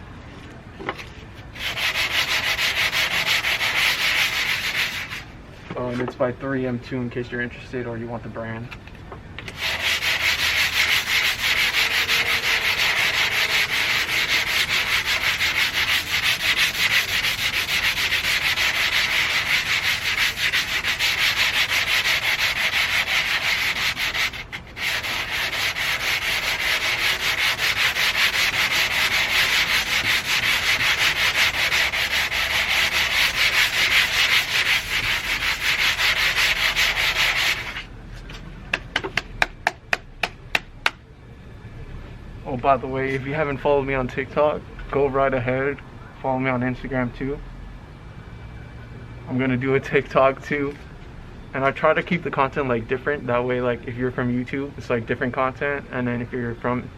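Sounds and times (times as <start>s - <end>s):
sandpaper scrubbing metal: 1.5s - 5.3s, 9.5s - 37.9s.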